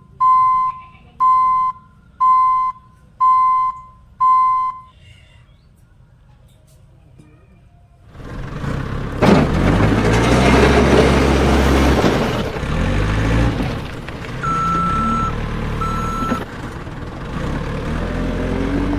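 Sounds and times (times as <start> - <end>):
reversing beeps: 0.0 - 5.0, 14.4 - 16.4
digger engine rumbling: 8.1 - 18.9.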